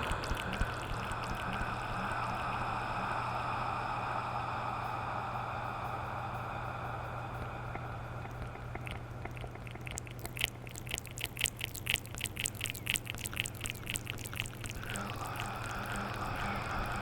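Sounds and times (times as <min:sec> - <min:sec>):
wet mouth clicks and tongue smacks: 0:00.0 - 0:01.8, 0:08.2 - 0:17.0.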